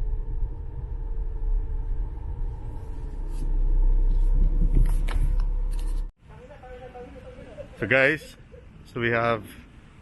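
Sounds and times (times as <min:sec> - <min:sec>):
car driving rumble: 0:00.0 - 0:06.1.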